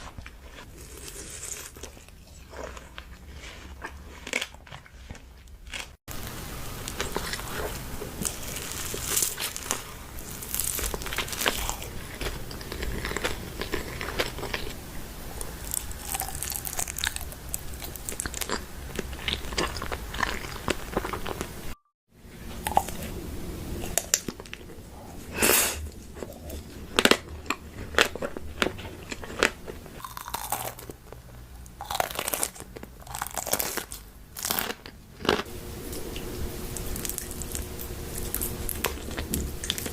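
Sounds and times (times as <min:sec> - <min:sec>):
crunchy chewing: 0:00.0 - 0:21.5, 0:22.6 - 0:23.2, 0:23.8 - 0:39.9.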